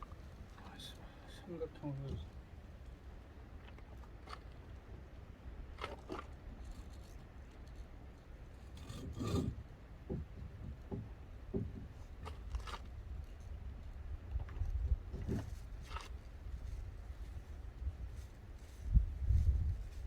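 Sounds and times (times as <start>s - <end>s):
wood scraping and knocking: 8.8s - 12.8s, 14.4s - 16.1s.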